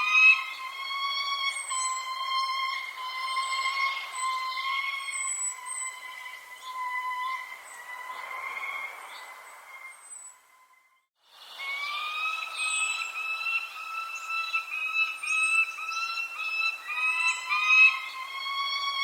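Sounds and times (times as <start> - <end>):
birds chirping: 0.0 - 19.0
steady whistle-like tone: 9.7 - 19.0.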